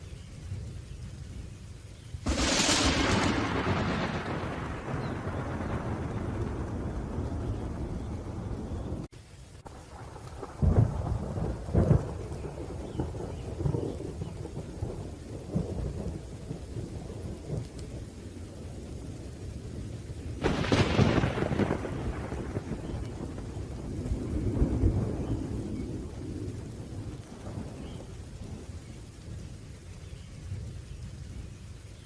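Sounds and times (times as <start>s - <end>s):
rain falling: 0.0s - 32.0s
sharp thunderclap: 2.2s - 9.1s, 9.9s - 17.8s, 20.4s - 28.7s
low rolling thunder: 2.2s - 32.0s.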